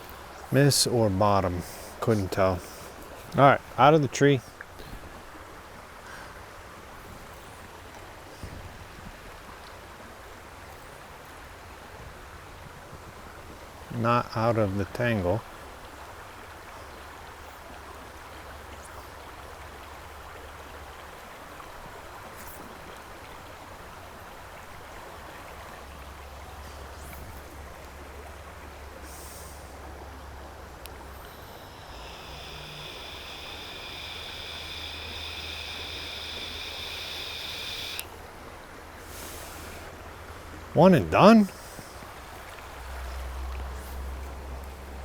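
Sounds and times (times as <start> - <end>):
stream water running: 0.0 - 45.0
steady high buzz: 30.8 - 38.2.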